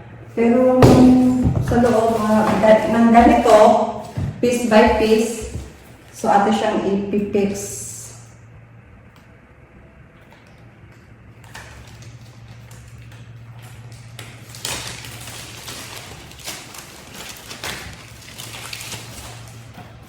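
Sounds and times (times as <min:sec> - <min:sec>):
low steady hum: 0:00.0 - 0:20.0
sharp knocks: 0:00.8 - 0:05.8
plastic packaging rustling and clicking: 0:00.9 - 0:06.0, 0:10.2 - 0:20.0.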